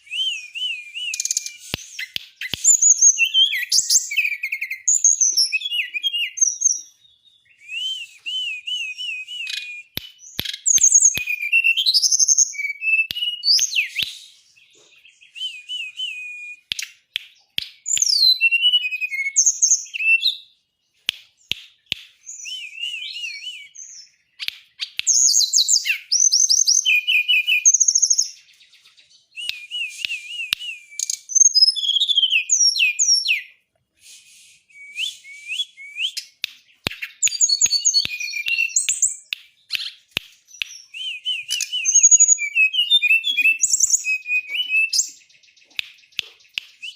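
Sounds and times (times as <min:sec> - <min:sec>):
songbird singing: 0:00.0 - 0:33.8, 0:34.5 - 0:46.9
sharp clicks: 0:01.2 - 0:03.0, 0:36.2 - 0:40.8.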